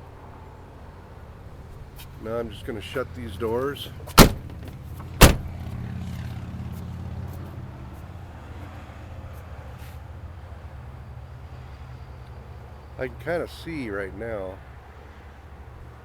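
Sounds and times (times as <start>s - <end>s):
car doors slamming shut: 4.1s - 5.6s.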